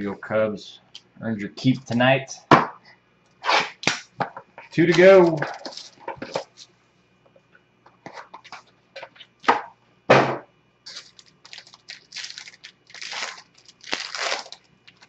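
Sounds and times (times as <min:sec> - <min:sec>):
packaging being torn open: 0:10.9 - 0:15.0.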